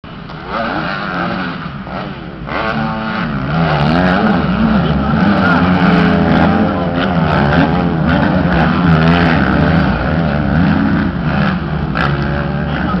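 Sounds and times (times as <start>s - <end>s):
motocross bikes revving: 0.1s - 13.0s.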